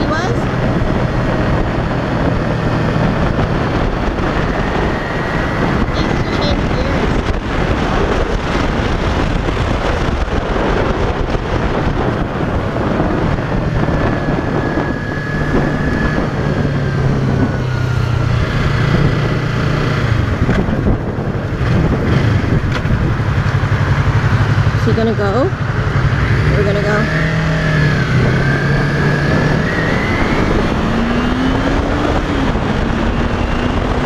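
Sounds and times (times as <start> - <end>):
motorcycle engine running: 0.0 - 34.0
wind buffeting microphone: 0.0 - 34.0.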